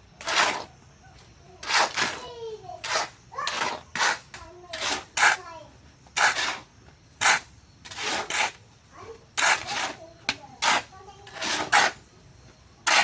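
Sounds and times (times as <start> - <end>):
rough scraping strokes: 0.1 - 0.8, 1.6 - 8.6, 9.3 - 12.1, 12.8 - 13.0.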